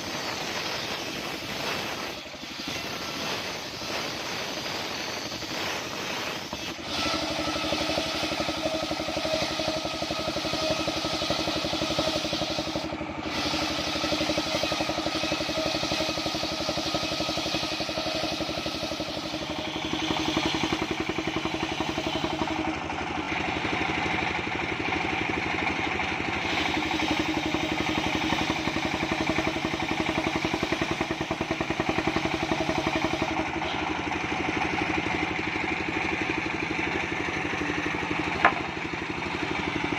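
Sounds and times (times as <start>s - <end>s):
high-pitched whine: 0.0s - 37.0s
sawmill engine running: 0.0s - 39.9s.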